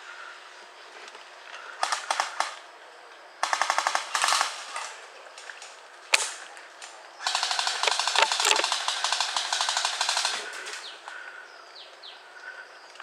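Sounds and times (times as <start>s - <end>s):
airsoft guns firing full auto: 1.8s - 2.6s, 3.4s - 5.0s, 7.2s - 10.9s
single sharp crack: 6.2s - 6.4s.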